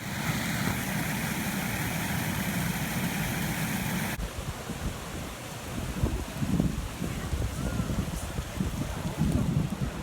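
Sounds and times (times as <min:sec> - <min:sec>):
running water: 0:00.0 - 0:04.2
waterfall rushing: 0:00.0 - 0:04.2.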